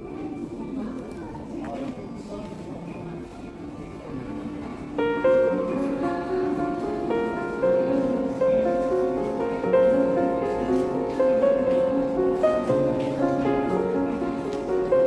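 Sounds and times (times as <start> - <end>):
gentle piano melody: 4.8 - 15.0.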